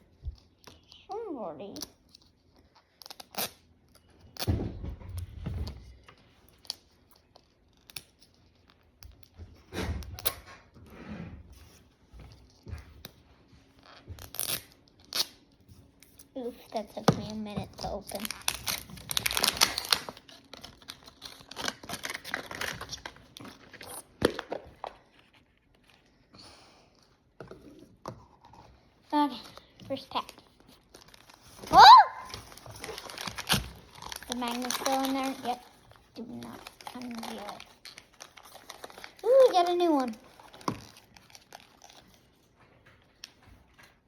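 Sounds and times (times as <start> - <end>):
plastic wrapping crinkling: 16.4 - 26.1, 29.2 - 44.0.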